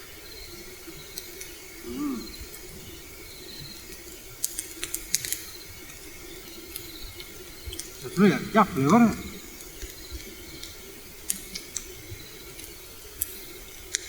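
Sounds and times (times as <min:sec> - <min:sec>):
faint steady hum: 0:00.0 - 0:14.0
voice murmuring: 0:01.8 - 0:02.4, 0:08.0 - 0:09.6
light sharp clicks and taps: 0:09.8 - 0:14.0.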